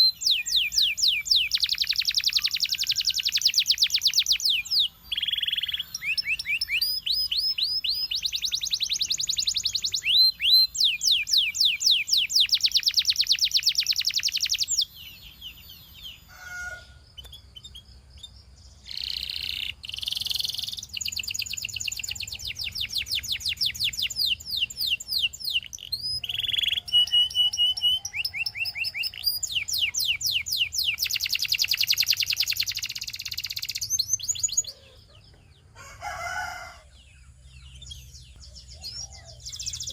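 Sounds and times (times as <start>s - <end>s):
canary trilling: 0.0s - 35.2s.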